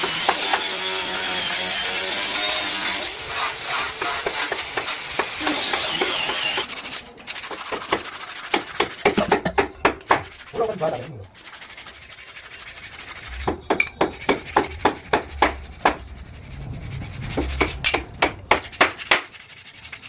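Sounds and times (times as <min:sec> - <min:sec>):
sanding or filing wood: 0:00.0 - 0:20.0.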